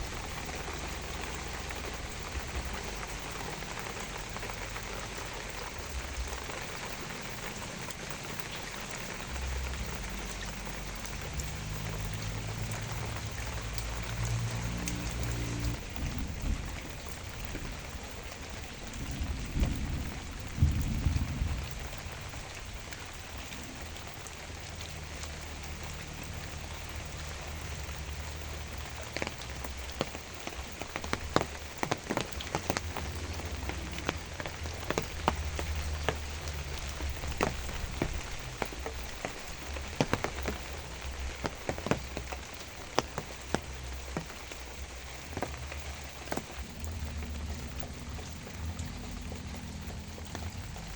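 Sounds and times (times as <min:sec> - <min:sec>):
steady rain falling: 0:00.0 - 0:50.9
low rumble: 0:09.2 - 0:24.1, 0:30.6 - 0:50.9
heavy drops tapping: 0:29.2 - 0:49.1.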